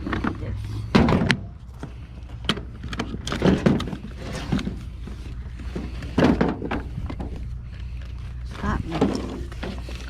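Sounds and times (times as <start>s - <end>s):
boxes knocking and rustling: 0.0s - 7.5s
low hum: 0.0s - 10.0s.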